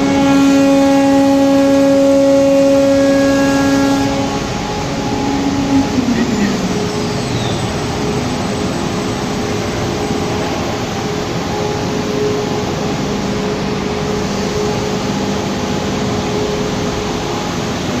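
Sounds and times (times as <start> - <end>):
machinery running: 0.0 - 18.0.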